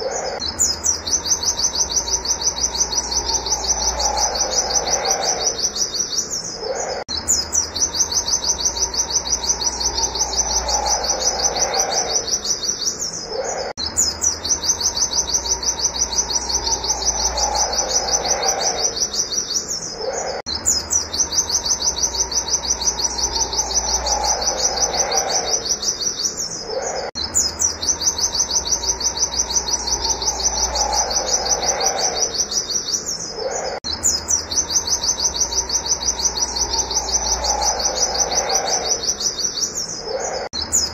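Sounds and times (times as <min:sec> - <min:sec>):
bird singing rapid high notes: 0:00.0 - 0:40.9.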